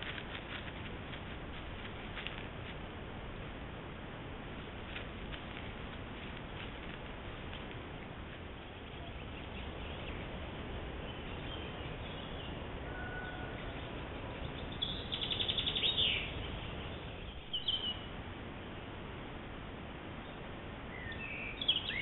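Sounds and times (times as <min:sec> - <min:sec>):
steady background hiss: 0:00.0 - 0:22.0
wild birds calling: 0:04.5 - 0:18.9, 0:20.2 - 0:22.0.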